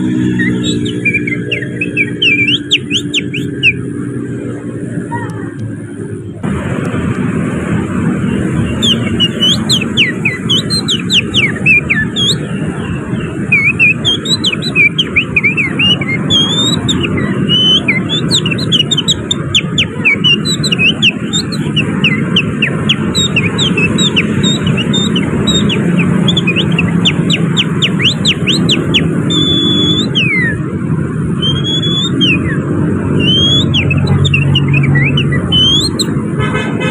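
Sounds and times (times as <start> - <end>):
low rumble of city traffic: 0.0 - 36.9
man whistling birdsong: 0.2 - 3.8, 8.8 - 12.5, 13.5 - 30.6, 31.4 - 32.6, 33.2 - 36.1.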